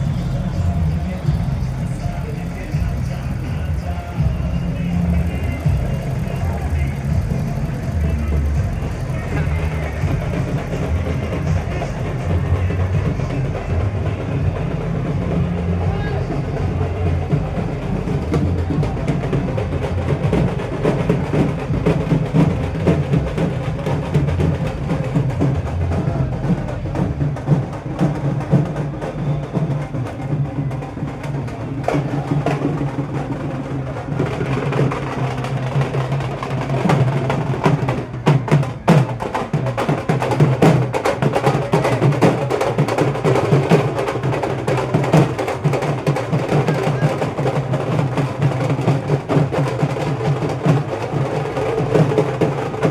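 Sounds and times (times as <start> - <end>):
drums beaten fast: 0.0 - 52.9.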